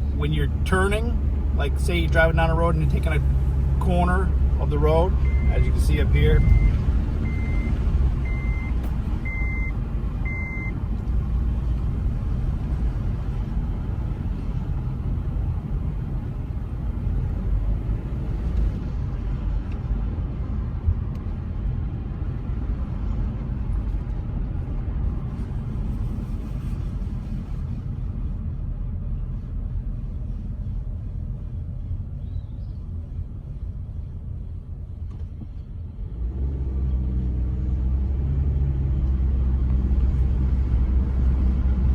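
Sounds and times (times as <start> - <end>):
road and tyre rumble: 0.0 - 41.9
short high beeps: 6.3 - 9.7.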